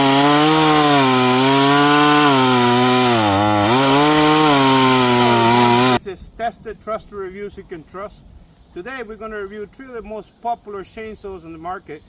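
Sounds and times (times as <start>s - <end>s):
chainsaw cutting wood: 0.0s - 6.0s.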